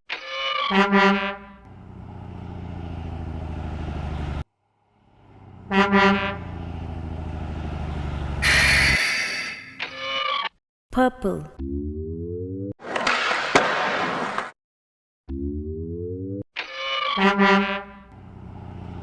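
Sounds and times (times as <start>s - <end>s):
truck horn honking: 0.7s - 1.7s, 5.4s - 6.8s, 8.3s - 9.7s, 17.2s - 18.1s
truck engine low rumble: 1.5s - 9.0s, 18.0s - 19.0s.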